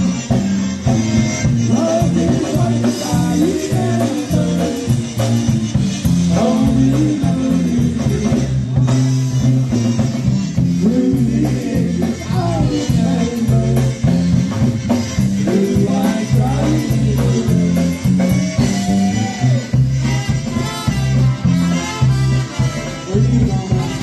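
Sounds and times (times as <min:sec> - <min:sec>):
live band playing: 0:00.0 - 0:24.0
person singing: 0:01.7 - 0:05.0, 0:06.3 - 0:08.5, 0:10.7 - 0:14.1, 0:15.4 - 0:19.7.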